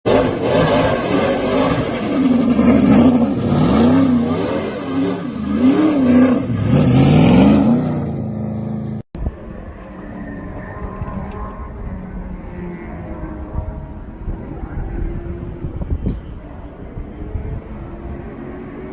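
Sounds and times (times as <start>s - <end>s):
race car engine revving: 0.1s - 9.0s.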